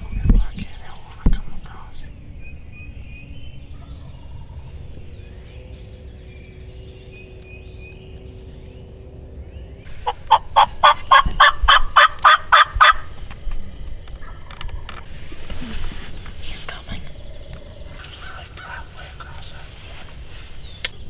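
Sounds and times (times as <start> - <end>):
faint songbird chirps: 0.0 - 21.0
wild turkey yelping: 9.9 - 13.2.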